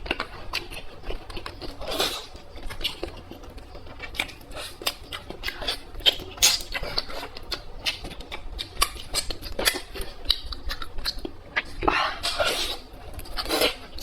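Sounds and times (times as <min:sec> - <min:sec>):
person chewing: 0:00.0 - 0:14.0.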